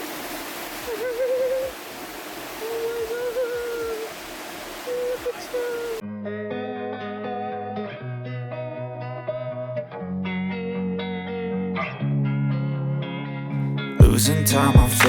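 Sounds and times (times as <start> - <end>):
roar of rushing waterfall: 0.0 - 6.0
wavering hoot-like tone: 0.7 - 6.0
guitar music: 6.0 - 15.0.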